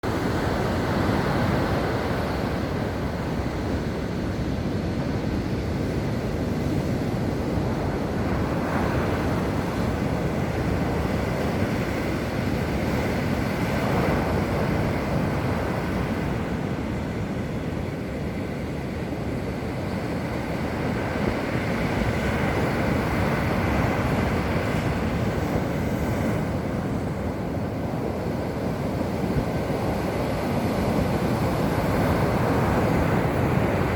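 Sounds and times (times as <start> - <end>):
sea surf washing in: 0.0 - 33.9
wind on microphone: 0.0 - 33.9.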